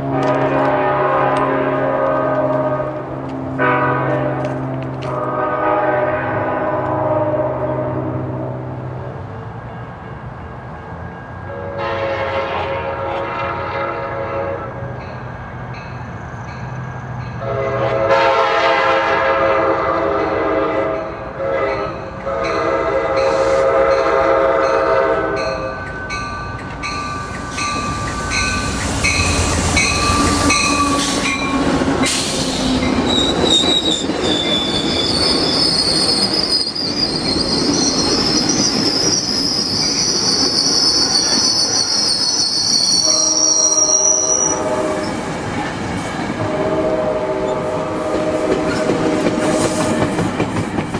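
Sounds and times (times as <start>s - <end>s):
train horn blasts: 0.0s - 8.7s, 11.5s - 14.9s, 17.4s - 25.8s, 27.5s - 32.8s, 42.8s - 45.2s, 46.4s - 50.1s
train passing with rushing wheels: 0.0s - 50.9s
high wheel squeal: 26.8s - 45.2s.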